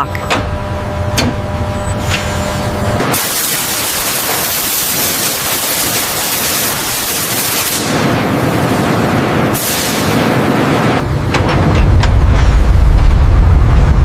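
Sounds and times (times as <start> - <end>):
low mechanical hum: 0.0 - 14.0
loud steady hiss: 3.0 - 8.2, 9.5 - 10.4.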